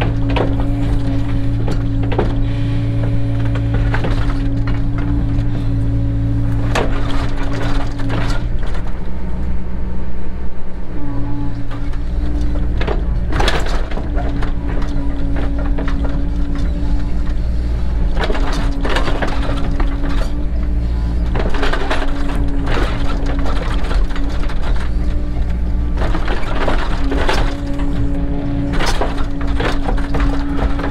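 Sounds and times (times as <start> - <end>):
excavator diesel engine running: 0.0 - 30.9
metal clanks and scrapes: 11.6 - 30.9.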